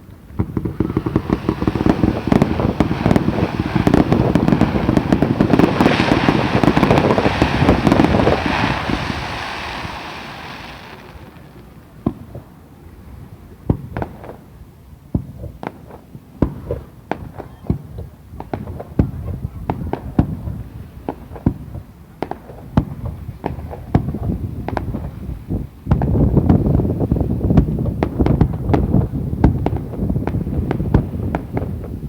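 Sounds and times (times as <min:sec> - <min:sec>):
fireworks bursting and crackling: 0:00.0 - 0:12.6, 0:15.2 - 0:32.0
single firework bangs: 0:00.3 - 0:12.4.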